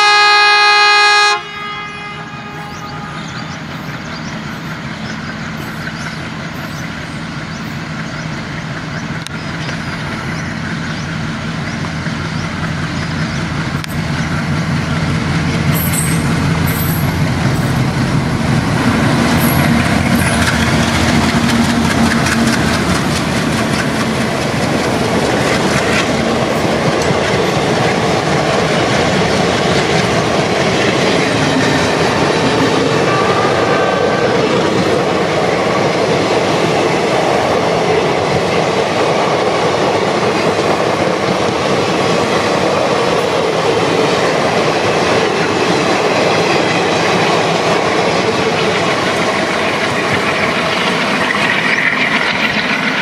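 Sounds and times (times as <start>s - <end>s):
diesel locomotives chugging: 0.0s - 53.0s
train wheels clattering over joints: 4.1s - 33.1s.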